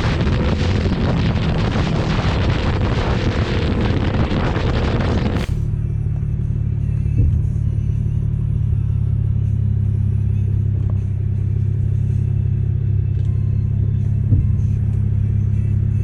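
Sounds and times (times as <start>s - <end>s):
motorcycle engine droning: 0.0s - 9.5s.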